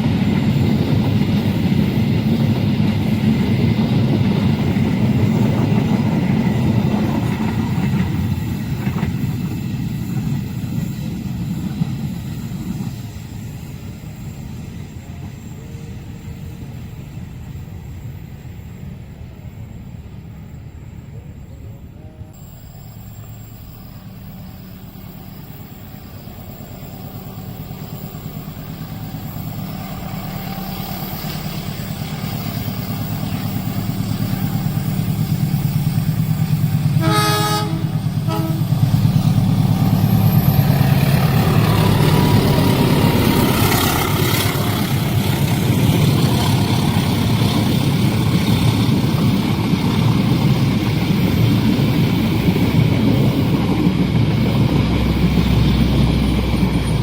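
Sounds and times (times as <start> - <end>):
diesel train engine hum: 0.0 - 57.0
train wheels rolling: 0.0 - 57.0
train horn: 36.9 - 39.2.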